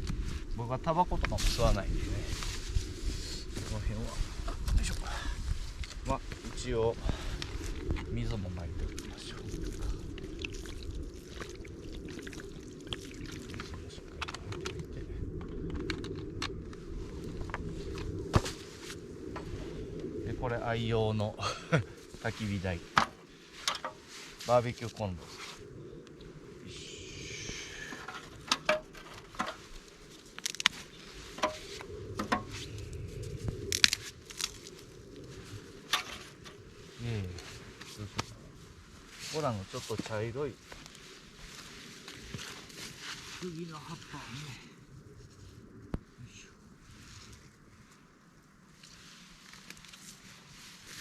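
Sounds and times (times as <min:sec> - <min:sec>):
water pouring onto ground: 0:07.2 - 0:14.9.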